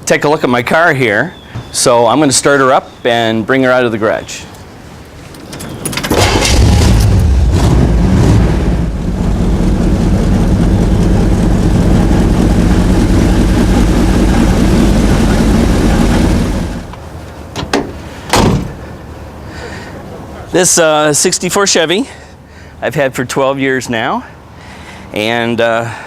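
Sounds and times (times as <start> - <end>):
car engine starting and idling: 5.3 - 18.9.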